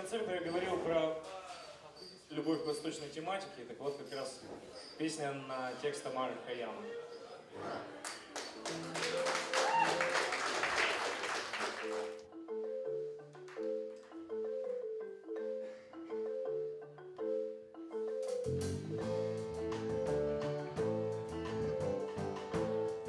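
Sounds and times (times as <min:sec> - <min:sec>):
applause: 0:08.0 - 0:12.2
instrument playing repeating melody: 0:11.8 - 0:23.0
bass and drums: 0:18.4 - 0:23.0.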